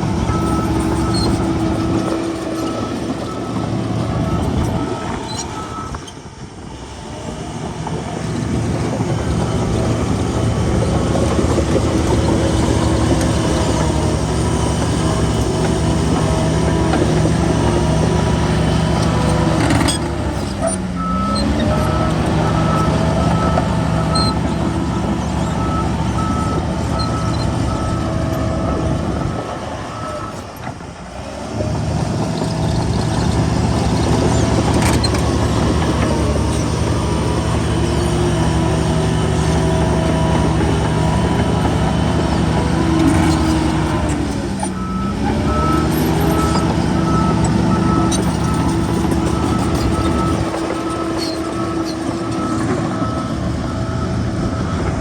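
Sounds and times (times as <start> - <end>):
heavy diesel machinery running: 0.0 - 55.0
reversing alarm beeping: 0.2 - 6.0, 42.6 - 55.0.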